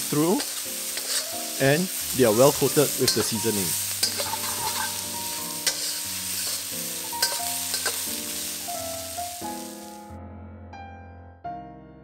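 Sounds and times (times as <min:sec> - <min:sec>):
prawns sizzling in a wok: 0:00.0 - 0:10.1
spatula stirring in a wok: 0:00.1 - 0:08.6
spatula clanking on pan: 0:00.4 - 0:01.3, 0:03.0 - 0:08.2.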